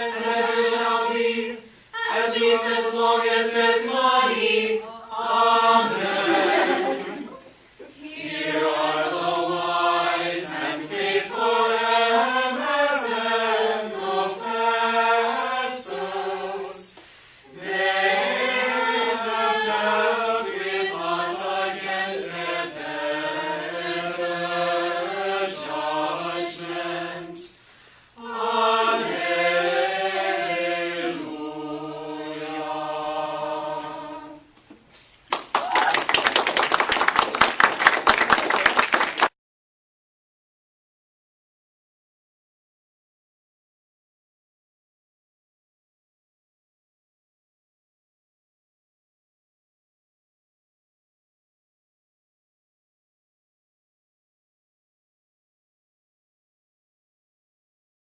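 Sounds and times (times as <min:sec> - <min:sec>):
choir singing plainchant: 0:00.0 - 0:27.6, 0:28.2 - 0:34.5.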